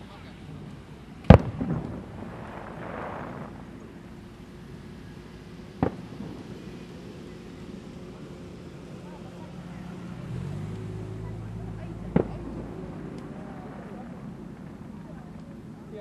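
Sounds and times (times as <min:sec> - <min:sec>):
firework shell boom: 0:01.3 - 0:03.6.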